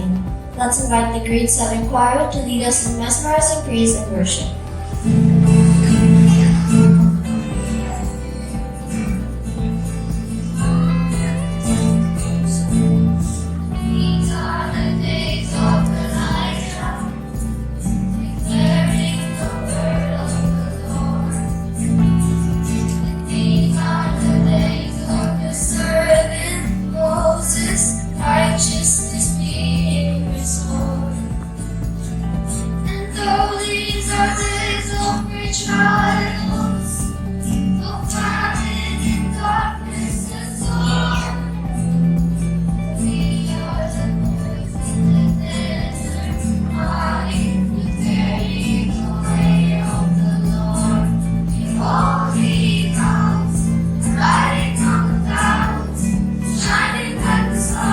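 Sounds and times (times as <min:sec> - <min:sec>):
children's choir singing: 0:00.0 - 0:57.9
sustained instrumental backing: 0:00.0 - 0:57.9.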